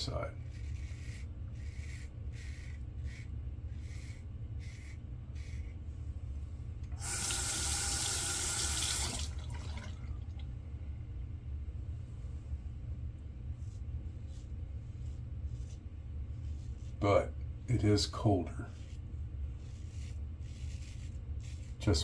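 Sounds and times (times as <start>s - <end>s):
steady low hum: 0.0s - 22.0s
sink tap running: 6.9s - 10.4s.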